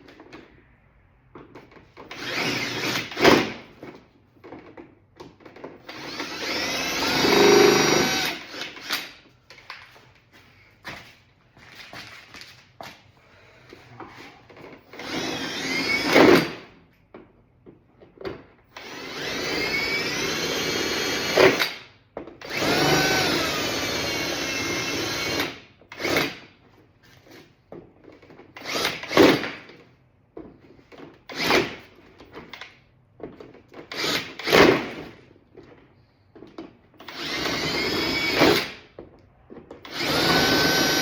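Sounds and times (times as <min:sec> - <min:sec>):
power drill whining: 0:02.0 - 0:03.6, 0:05.8 - 0:09.3, 0:14.6 - 0:16.6, 0:18.7 - 0:26.4, 0:28.6 - 0:29.4, 0:33.9 - 0:34.9, 0:37.0 - 0:38.8, 0:39.8 - 0:41.0.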